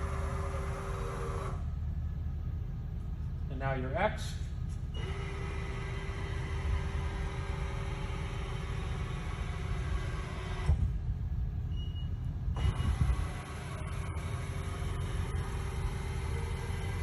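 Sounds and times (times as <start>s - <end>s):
milling machine motor whine: 0.0s - 1.8s, 4.9s - 11.0s, 11.7s - 17.0s.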